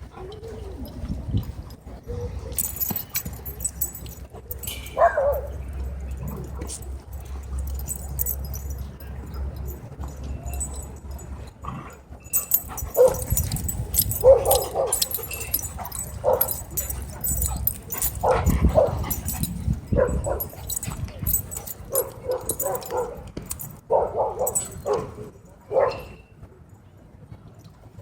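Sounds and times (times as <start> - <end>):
dogs yipping and barking: 2.4 - 6.1, 6.8 - 11.2, 12.3 - 26.2
dog yelping: 12.4 - 19.4.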